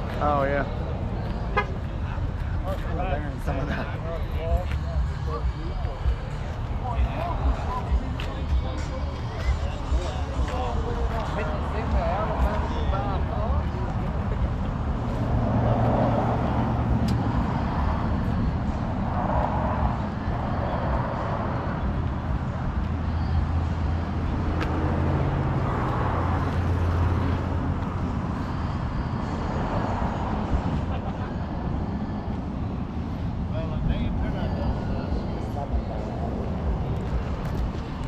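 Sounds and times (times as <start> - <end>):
people talking: 0.0 - 14.7, 33.5 - 37.2.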